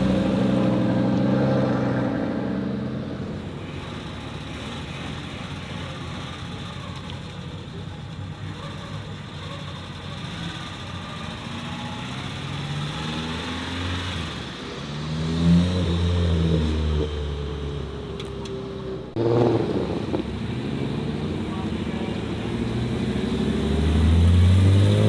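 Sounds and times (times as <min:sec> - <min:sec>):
second car engine: 0:00.0 - 0:25.0
car engine accelerating past: 0:19.1 - 0:25.0.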